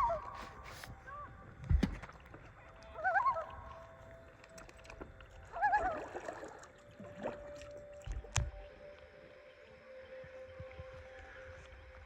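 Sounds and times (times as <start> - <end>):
loon tremolo calls: 0.0 - 1.5, 2.8 - 4.6, 5.4 - 6.8.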